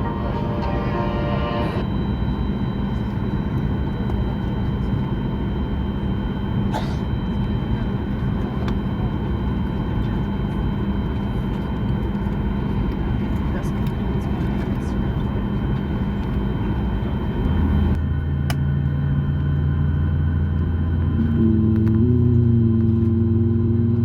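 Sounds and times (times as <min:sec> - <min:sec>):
airliner cabin rumble: 0:00.0 - 0:01.9.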